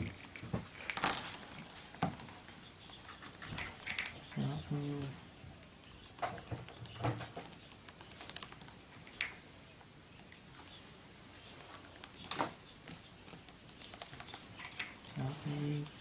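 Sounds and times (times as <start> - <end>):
bird clicking and scratching: 1.6 - 5.0, 5.6 - 10.8, 11.4 - 15.2.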